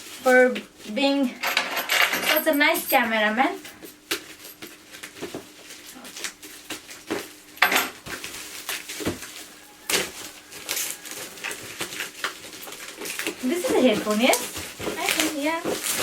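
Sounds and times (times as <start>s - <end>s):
packaging rustling: 3.9s - 16.0s.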